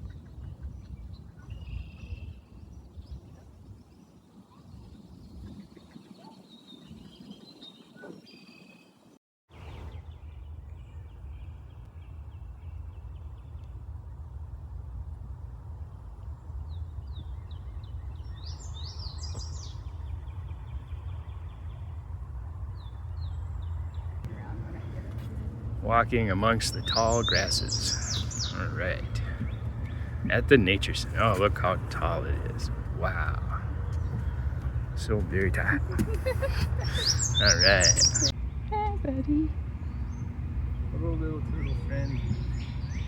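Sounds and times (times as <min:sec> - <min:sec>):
songbirds chirping and trilling: 0:00.0 - 0:14.4, 0:15.3 - 0:43.0
steady low rumble: 0:09.6 - 0:43.0.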